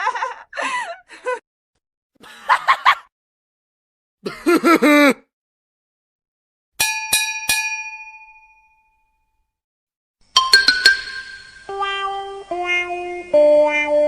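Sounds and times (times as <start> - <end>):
small bell dings: 6.8 - 9.4, 10.4 - 11.6.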